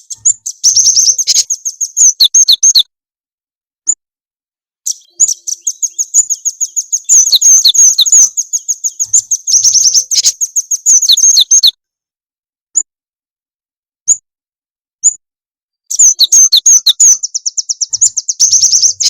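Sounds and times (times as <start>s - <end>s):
recorded songbird chirps: 0.0s - 2.9s, 4.8s - 11.8s, 14.0s - 14.3s, 15.0s - 15.2s, 15.8s - 19.0s.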